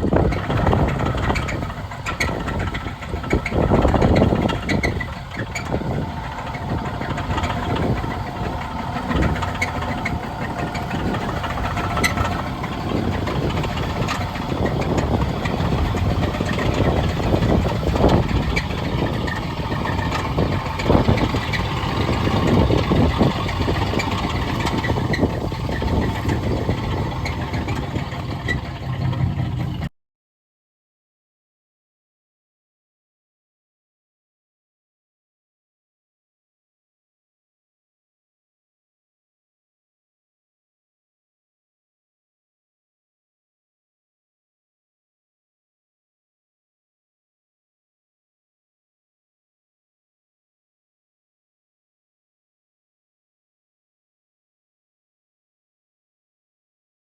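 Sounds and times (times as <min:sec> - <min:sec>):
car engine rumbling: 0:00.0 - 0:29.9.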